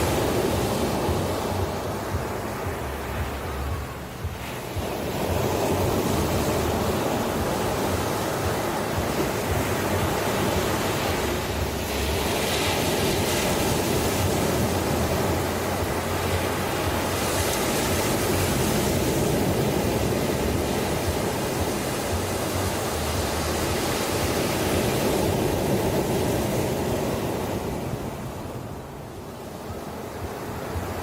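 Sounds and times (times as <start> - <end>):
ocean waves breaking: 0.0 - 31.0.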